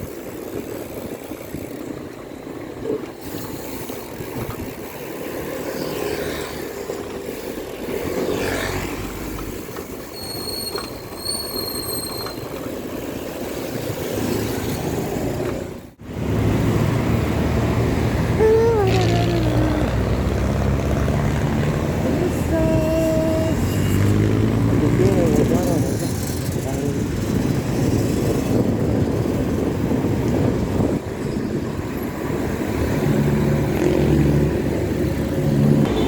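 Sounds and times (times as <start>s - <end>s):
street traffic: 0.0s - 36.0s
wind on microphone: 16.4s - 36.0s.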